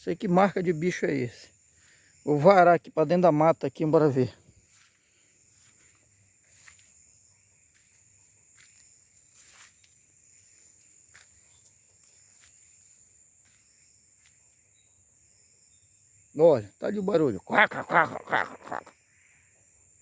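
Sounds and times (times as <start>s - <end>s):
high-pitched insect drone: 0.0s - 20.0s
footsteps: 4.5s - 7.0s, 7.7s - 10.0s
brushing through undergrowth: 8.6s - 10.0s.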